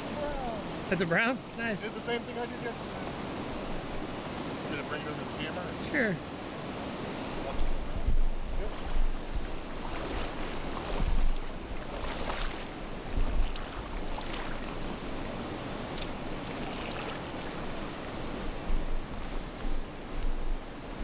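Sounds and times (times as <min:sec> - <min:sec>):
steady wash of water: 0:00.0 - 0:21.0
wind buffeting microphone: 0:06.5 - 0:21.0
shallow water splashing: 0:08.4 - 0:20.0.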